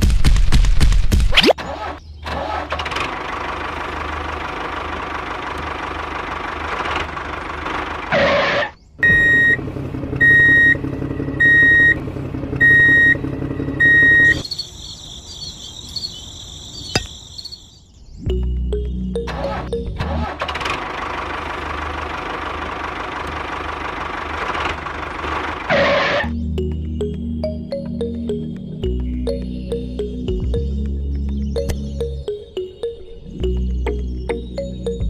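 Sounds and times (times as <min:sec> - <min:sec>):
vehicle engine running: 0:02.0 - 0:14.6, 0:18.3 - 0:35.0
reversing alarm beeping: 0:09.0 - 0:09.6, 0:10.2 - 0:12.0, 0:12.6 - 0:15.1.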